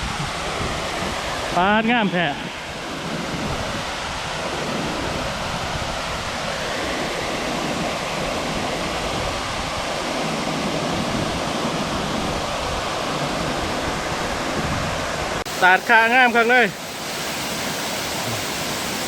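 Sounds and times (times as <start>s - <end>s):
waterfall rushing: 11.3s - 19.0s.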